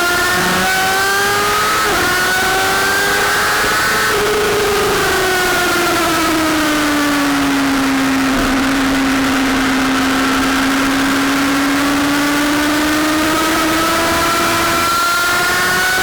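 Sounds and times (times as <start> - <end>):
motorcycle engine running: 0.0 - 16.0
steady rushing noise: 5.6 - 14.4.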